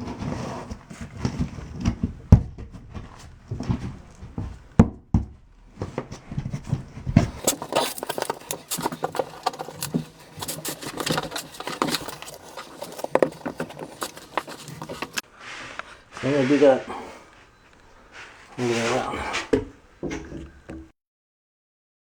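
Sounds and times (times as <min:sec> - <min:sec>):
hand tool scraping and clicking: 0:07.2 - 0:20.9.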